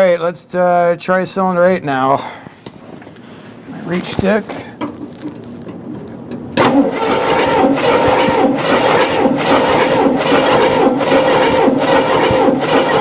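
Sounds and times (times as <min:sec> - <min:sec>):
engine starter cranking: 0:06.3 - 0:13.0.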